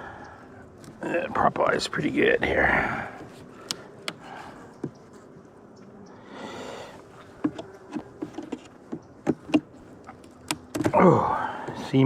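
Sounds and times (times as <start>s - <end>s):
honeybees buzzing: 0.0s - 12.0s
hive frames cracking loose: 3.2s - 6.1s, 7.0s - 12.0s.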